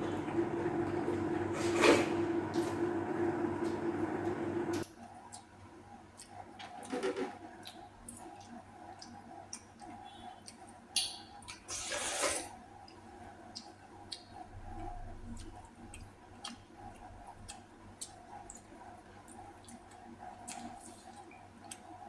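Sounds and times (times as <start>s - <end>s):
chewing: 4.8s - 11.9s, 12.8s - 22.0s.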